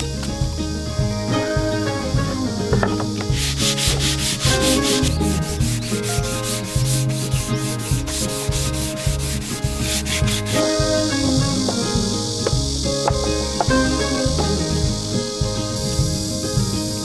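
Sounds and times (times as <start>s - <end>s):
sandpaper rubbing on wood: 3.1s - 13.7s.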